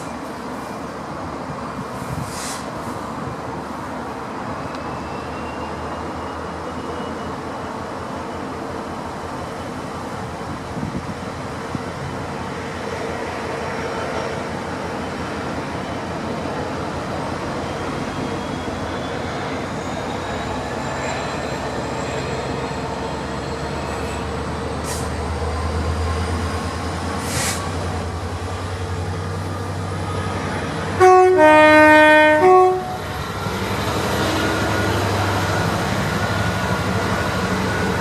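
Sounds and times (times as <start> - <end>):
diesel train rumbling: 0.0 - 38.0
two-tone train horn: 31.0 - 33.1.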